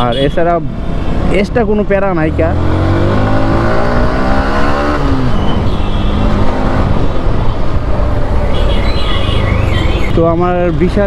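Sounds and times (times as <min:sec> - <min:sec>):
motorcycle engine accelerating: 0:02.2 - 0:08.3.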